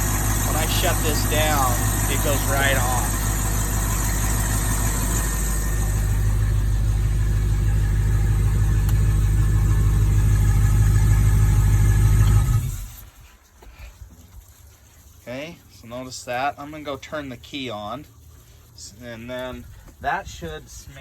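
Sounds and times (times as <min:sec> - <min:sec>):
boat engine idling: 0:00.0 - 0:13.1.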